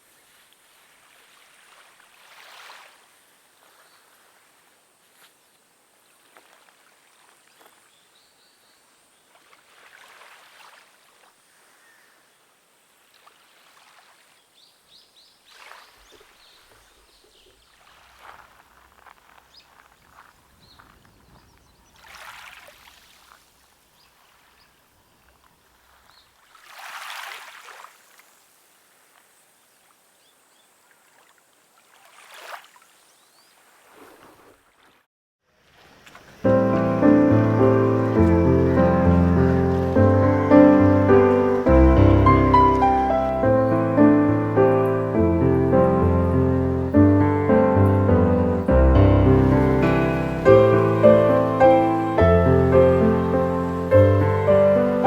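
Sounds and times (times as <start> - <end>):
water lapping: 0.1 - 5.3, 9.3 - 11.8, 15.5 - 29.1, 30.9 - 35.0, 35.6 - 55.0
faint bird chirps: 11.5 - 12.3.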